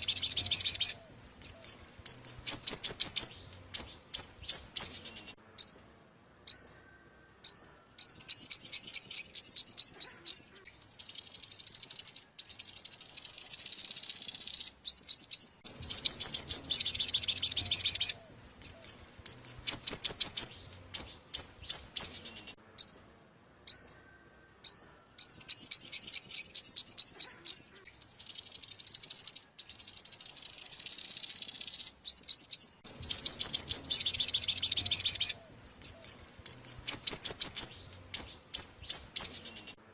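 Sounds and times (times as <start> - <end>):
sunbird song: 0.0 - 39.9.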